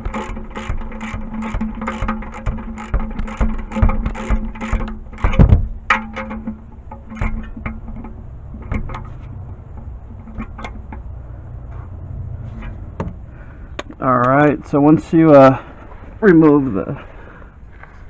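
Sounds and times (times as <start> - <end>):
ratchet wrench clicking: 0.0 - 5.4
heavy knock: 2.5 - 6.1.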